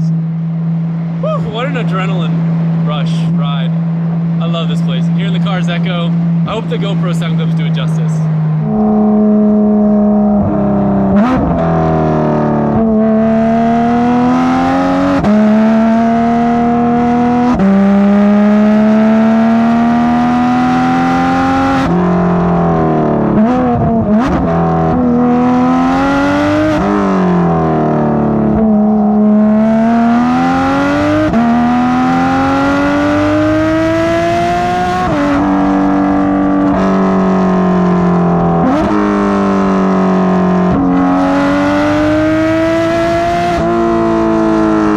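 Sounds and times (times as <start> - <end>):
sports car engine revving: 0.0 - 44.9
engine rev blips: 8.6 - 22.0.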